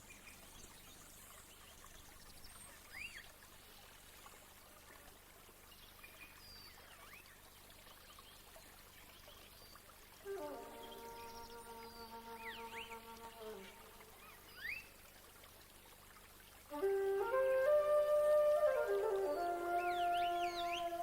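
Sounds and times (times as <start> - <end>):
faint trickling water: 0.0 - 21.0
music: 10.3 - 13.6, 16.7 - 21.0.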